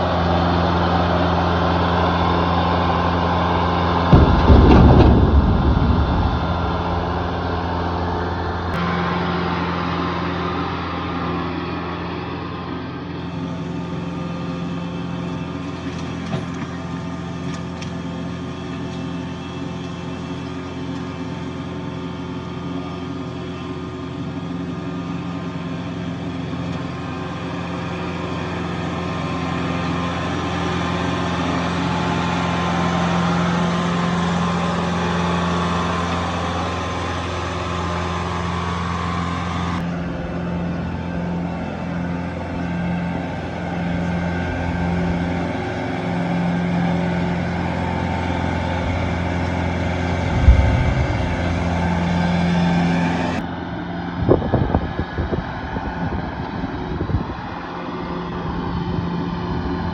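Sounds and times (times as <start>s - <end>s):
heavy equipment engine running: 0.0s - 59.9s
sharp knock: 4.2s - 8.4s.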